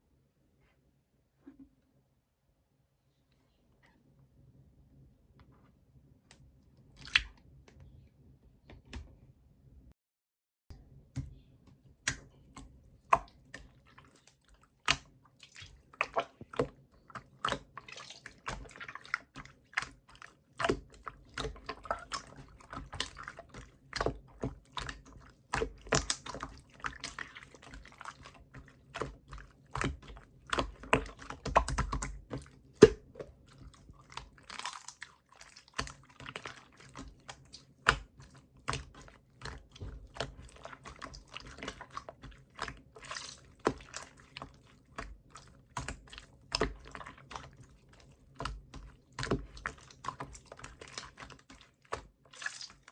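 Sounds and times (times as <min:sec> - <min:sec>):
slime squished by hand: 0:07.0 - 0:07.4, 0:12.0 - 0:52.9.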